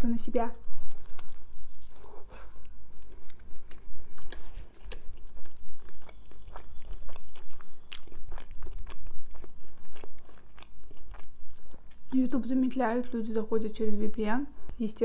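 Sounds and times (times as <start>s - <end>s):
close chewing clicks and smacks: 1.0s - 12.1s.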